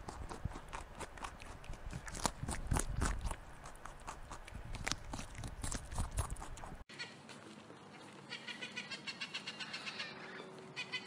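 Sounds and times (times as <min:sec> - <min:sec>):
hare chewing grass: 0:00.0 - 0:08.2.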